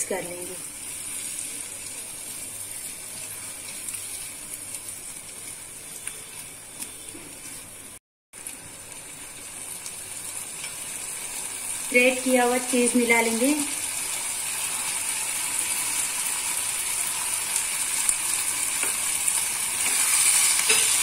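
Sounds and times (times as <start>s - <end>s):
vegetables sizzling in a pan: 0.0s - 21.0s
spatula scraping and tapping: 19.8s - 21.0s.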